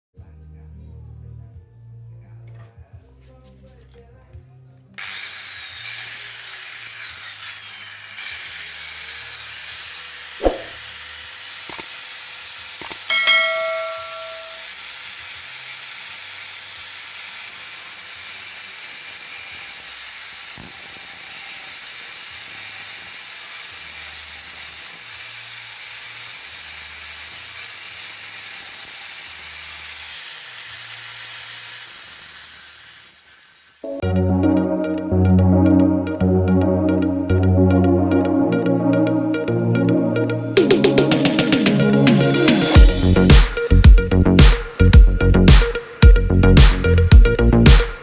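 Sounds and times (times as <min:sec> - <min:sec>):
electric grinder motor whining: 0:05.0 - 0:13.1, 0:14.6 - 0:33.8
ringing metal clang: 0:13.1 - 0:14.7
sharp knocks: 0:44.4 - 0:48.0.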